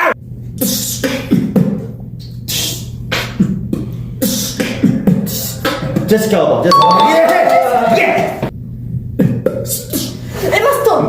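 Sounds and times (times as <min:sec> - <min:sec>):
person beatboxing: 0:00.6 - 0:05.7.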